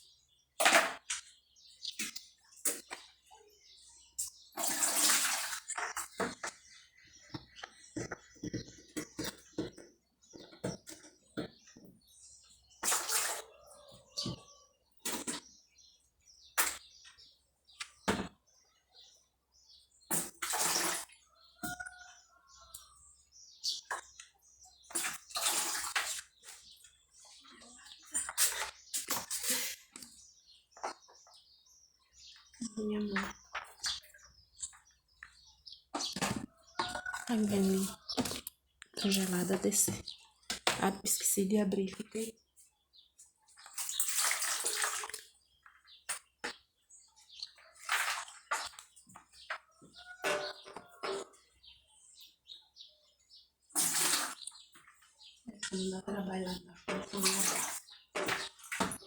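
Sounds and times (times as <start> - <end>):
water splashing and sloshing: 0.6 - 17.2, 20.0 - 22.8, 23.8 - 31.4, 32.7 - 42.2, 43.1 - 51.6, 53.6 - 59.0
water splashing and pouring: 4.5 - 6.4, 12.8 - 13.7, 20.1 - 21.3, 24.9 - 26.7, 43.6 - 46.3, 47.6 - 49.3, 53.7 - 55.0, 56.9 - 59.0.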